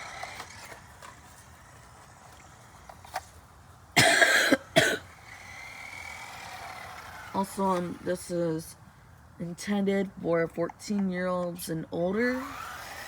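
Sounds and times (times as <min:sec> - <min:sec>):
person coughing: 0:04.0 - 0:05.0.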